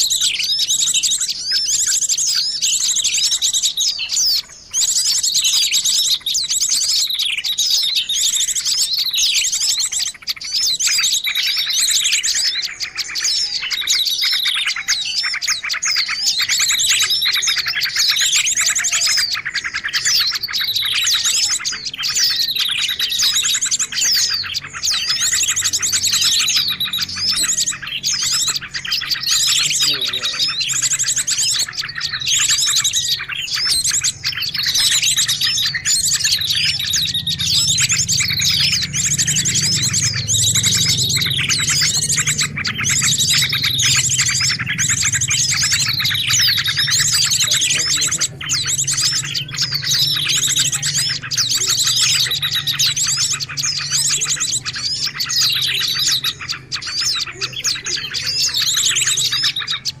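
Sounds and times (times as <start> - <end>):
songbirds chirping and trilling: 0.0 - 60.0
low hum: 35.4 - 51.2.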